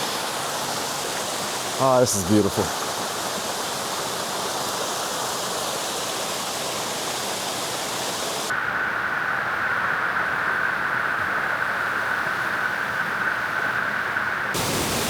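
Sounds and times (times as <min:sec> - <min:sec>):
waterfall rushing: 0:00.0 - 0:08.5, 0:14.6 - 0:15.0.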